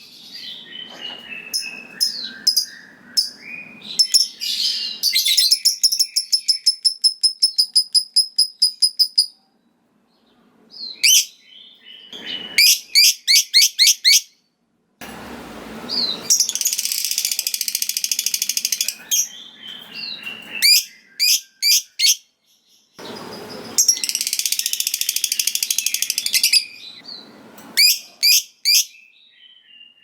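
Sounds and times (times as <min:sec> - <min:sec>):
lovebird chirping: 0:00.3 - 0:09.4, 0:15.9 - 0:30.0
rapid shrill bird chatter: 0:16.0 - 0:22.2, 0:23.0 - 0:29.0.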